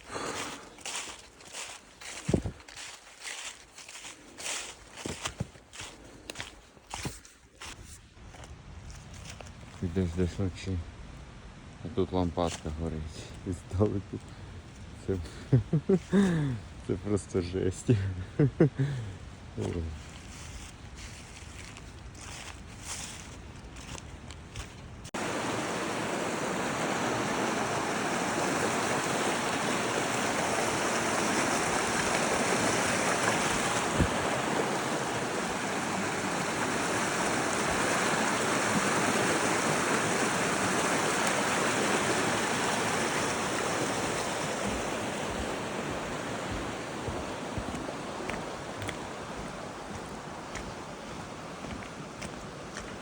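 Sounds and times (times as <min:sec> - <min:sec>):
running water rushing: 0:00.0 - 0:07.8, 0:25.1 - 0:53.0.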